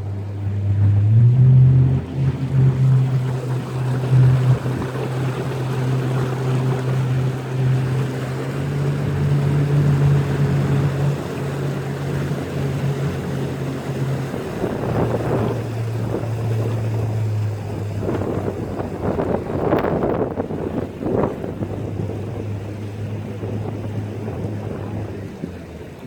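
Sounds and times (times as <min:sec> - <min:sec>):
boat motor humming: 0:00.0 - 0:26.0
rushing water: 0:00.0 - 0:26.0
wind: 0:00.0 - 0:26.0.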